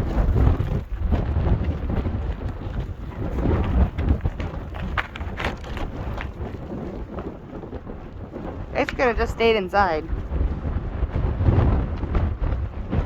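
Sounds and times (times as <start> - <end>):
sharp knocks and rustles: 0.0 - 9.1
blizzard wind gusts: 0.0 - 13.0.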